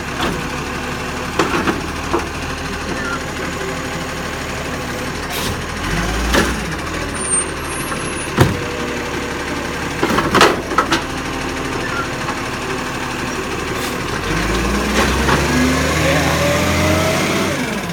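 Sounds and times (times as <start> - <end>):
garbage truck engine running: 0.0 - 17.9
sharp knocks: 8.4 - 8.7.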